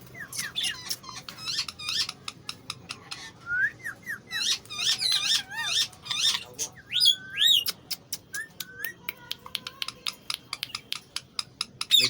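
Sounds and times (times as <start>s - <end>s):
parrot chirping: 0.0s - 9.0s.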